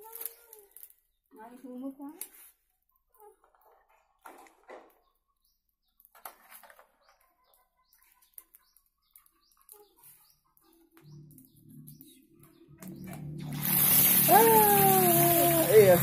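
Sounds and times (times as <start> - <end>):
faint bird chirping: 2.8 - 13.6.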